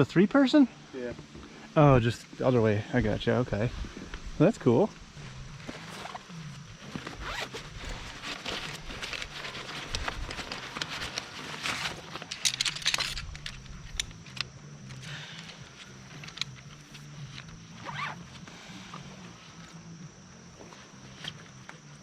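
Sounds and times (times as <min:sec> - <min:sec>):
tent zipper being pulled: 0:05.7 - 0:12.5, 0:17.7 - 0:19.0.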